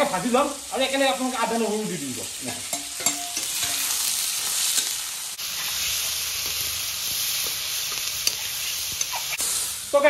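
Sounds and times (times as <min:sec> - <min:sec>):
onions and tomatoes sizzling in oil: 0:00.0 - 0:10.0
metal spoon scraping pan: 0:02.7 - 0:09.4.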